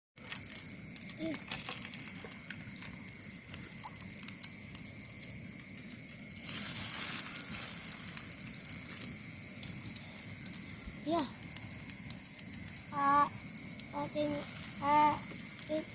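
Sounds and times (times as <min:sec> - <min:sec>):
drip ticks: 0:00.2 - 0:06.4, 0:08.1 - 0:15.9
heavy rain pattering on shelter: 0:06.4 - 0:15.9.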